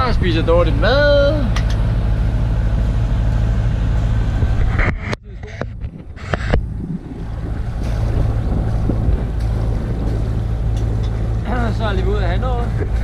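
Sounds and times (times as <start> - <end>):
boat engine running: 0.0 - 13.0
wind on microphone: 4.1 - 13.0.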